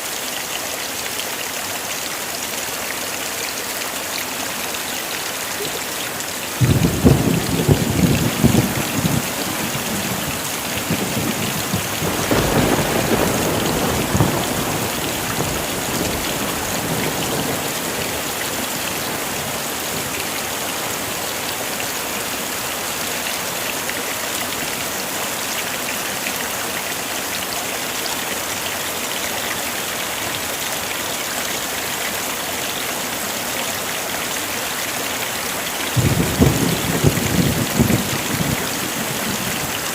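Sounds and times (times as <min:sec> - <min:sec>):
heavy rain: 0:00.0 - 0:39.9
thunder rolling: 0:06.6 - 0:18.0, 0:36.0 - 0:39.9.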